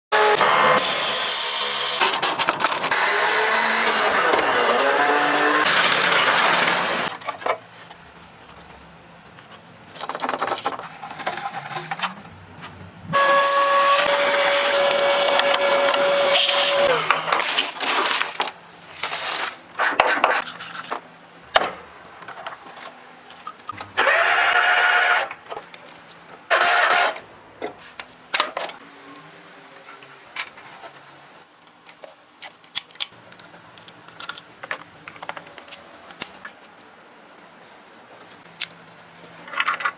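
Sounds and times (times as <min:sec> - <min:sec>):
power tool bursts: 0:00.2 - 0:07.1, 0:13.2 - 0:17.4.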